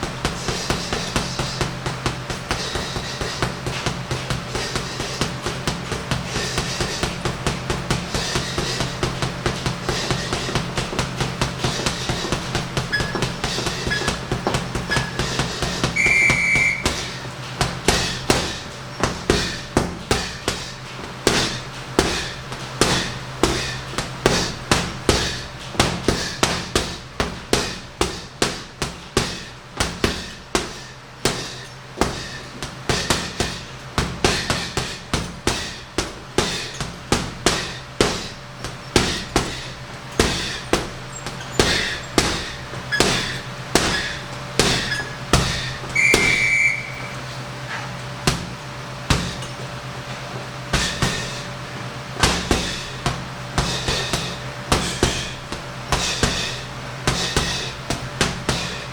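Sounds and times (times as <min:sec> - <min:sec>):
punches on heavy bag: 0:00.0 - 0:49.5, 0:50.7 - 0:51.6, 0:52.2 - 0:58.9
high beep: 0:16.0 - 0:16.8, 0:46.0 - 0:47.1.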